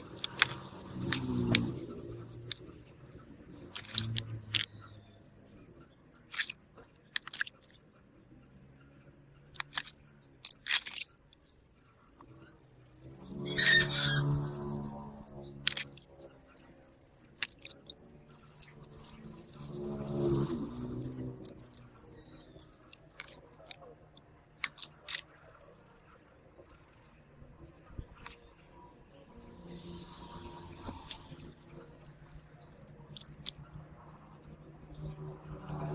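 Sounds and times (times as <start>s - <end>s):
small sharp clicks of hand tools: 0.0s - 2.7s
small tools clicking and scraping: 0.0s - 35.9s.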